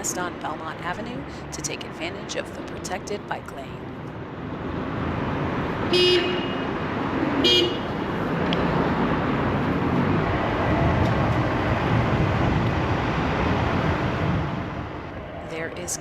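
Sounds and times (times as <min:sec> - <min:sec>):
traffic: 0:00.0 - 0:16.0
wind noise: 0:04.4 - 0:16.0
vehicle horn toots: 0:05.9 - 0:06.7, 0:07.4 - 0:08.0.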